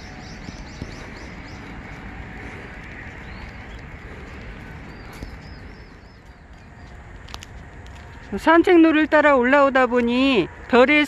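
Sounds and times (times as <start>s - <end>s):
birds chirping: 0.0s - 8.5s
steady outdoor hiss: 0.0s - 11.0s.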